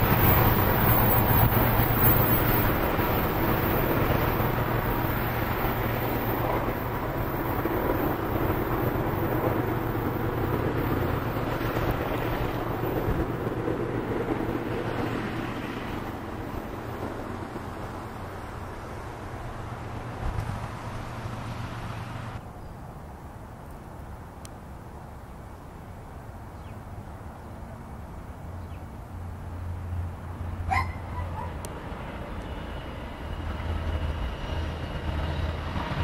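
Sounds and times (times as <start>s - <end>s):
freight train rumbling on tracks: 0.0s - 22.5s, 27.2s - 36.0s.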